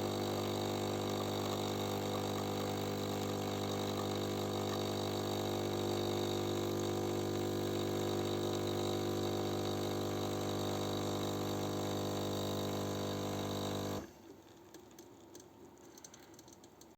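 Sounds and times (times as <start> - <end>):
coffee machine humming: 0.0 - 14.2
faint ticks: 14.7 - 16.9.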